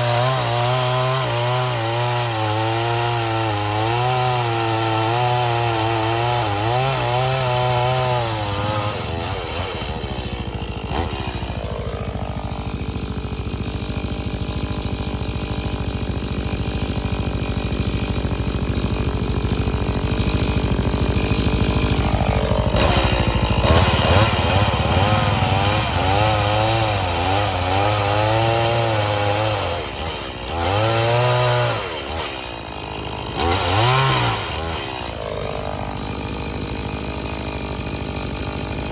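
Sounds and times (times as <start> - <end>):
chainsaw running: 0.0 - 38.9.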